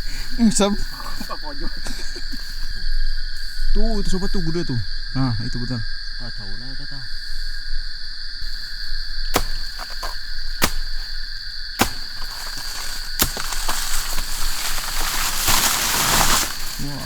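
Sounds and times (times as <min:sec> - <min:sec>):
insects droning: 0:00.0 - 0:17.0
sharp knocks: 0:09.4 - 0:11.0, 0:11.8 - 0:15.7
rustling crash of leaves: 0:11.8 - 0:17.0.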